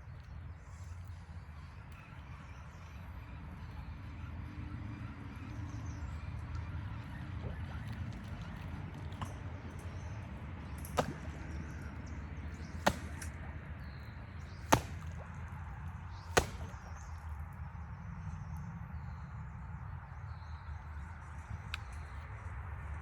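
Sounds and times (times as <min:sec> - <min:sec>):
sharp chopping blows: 0:10.8 - 0:11.9, 0:12.6 - 0:13.4, 0:14.4 - 0:15.5, 0:16.1 - 0:17.2.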